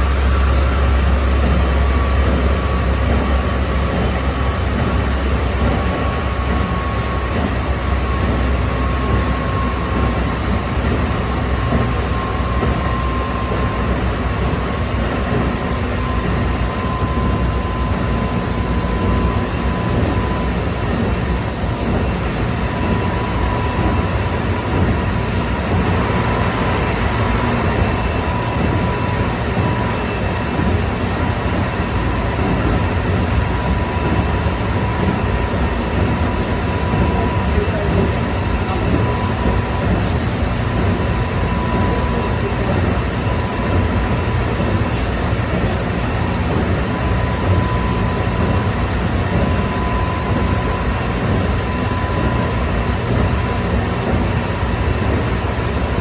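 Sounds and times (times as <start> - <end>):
train running gear rumble: 0.0 - 56.0.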